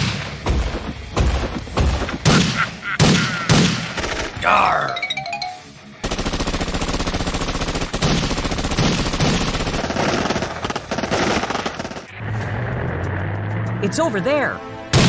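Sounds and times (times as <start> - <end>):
rapid rattle of sharp bangs: 0.0 - 4.4, 6.0 - 12.1.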